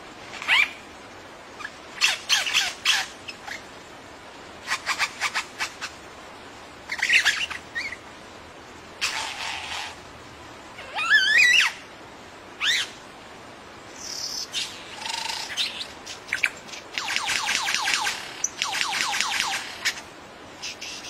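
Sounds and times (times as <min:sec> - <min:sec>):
bird calls: 0:00.4 - 0:00.8, 0:06.9 - 0:08.0, 0:14.0 - 0:20.0, 0:20.6 - 0:21.0
bird squawking: 0:14.3 - 0:20.0, 0:20.6 - 0:21.0.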